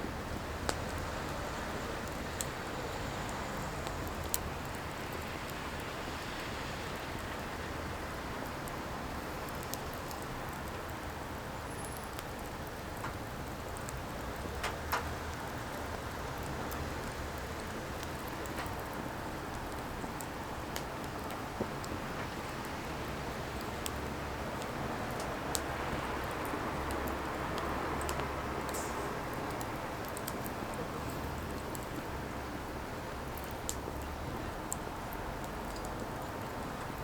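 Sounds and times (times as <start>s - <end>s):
fire crackles and pops: 0.0s - 37.0s
wood fire hissing: 0.1s - 37.0s.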